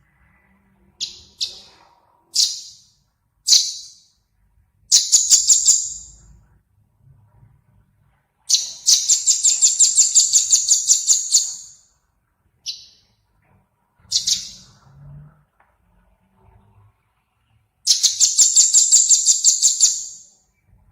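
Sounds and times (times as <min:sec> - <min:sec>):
songbird chirps and trill: 0:00.2 - 0:04.2, 0:04.9 - 0:06.4, 0:08.4 - 0:11.9, 0:12.6 - 0:13.2, 0:14.0 - 0:14.8, 0:17.8 - 0:20.8.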